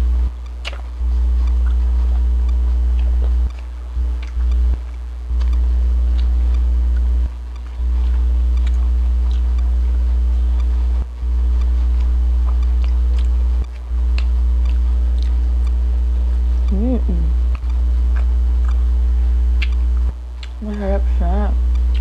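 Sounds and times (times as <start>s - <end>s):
low electrical hum: 0.0s - 22.0s
person chewing food: 0.3s - 20.6s, 21.7s - 22.0s
wet mouth clicks: 0.4s - 4.6s, 5.4s - 10.7s, 11.6s - 15.8s, 17.4s - 18.9s, 19.6s - 20.6s, 21.7s - 22.0s.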